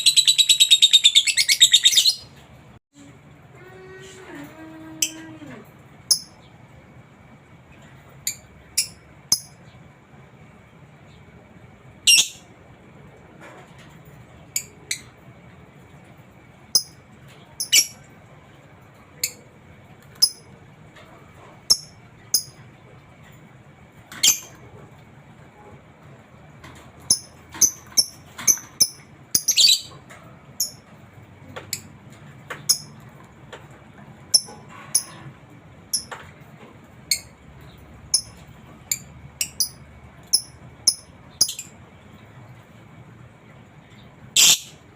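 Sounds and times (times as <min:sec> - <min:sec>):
lovebird chirping: 0:00.0 - 0:02.3, 0:12.1 - 0:12.4, 0:17.6 - 0:18.0, 0:27.1 - 0:29.9, 0:44.4 - 0:44.8.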